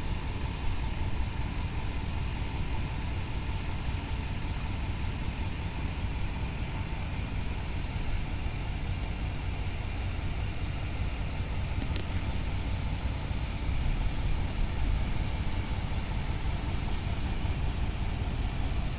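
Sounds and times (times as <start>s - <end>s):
truck engine humming with hiss: 0.0s - 18.9s
faint click: 9.0s - 9.2s, 11.8s - 12.2s.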